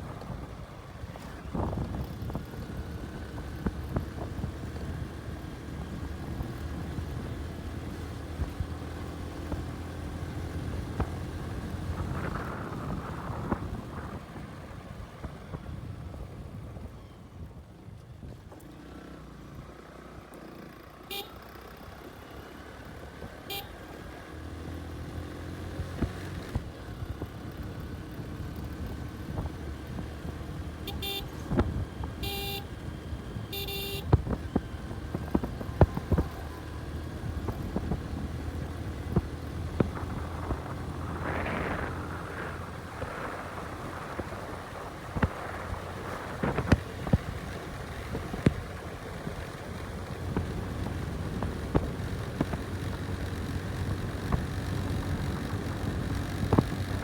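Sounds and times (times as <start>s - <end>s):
motorcycle engine running: 0.0s - 17.7s, 20.5s - 57.0s
short horn beeps: 21.1s - 21.6s, 23.4s - 24.0s, 30.8s - 31.5s, 32.2s - 32.8s, 33.4s - 34.2s.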